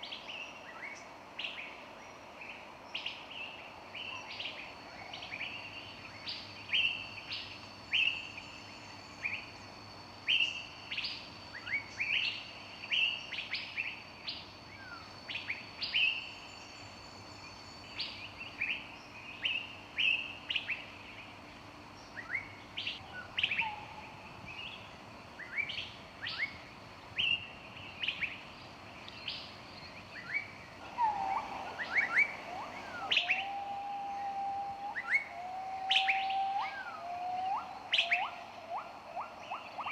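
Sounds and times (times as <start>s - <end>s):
songbirds chirping: 0.0s - 39.9s
low whistled bird notes: 30.2s - 39.9s.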